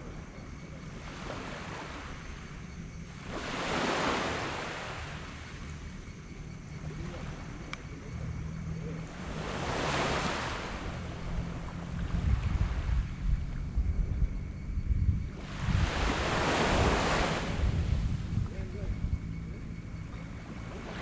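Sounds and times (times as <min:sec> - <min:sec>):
waves breaking on beach: 0:00.9 - 0:02.4, 0:03.0 - 0:05.8, 0:09.0 - 0:13.1, 0:15.3 - 0:18.3
steady low rumble: 0:10.4 - 0:16.0, 0:17.4 - 0:20.6.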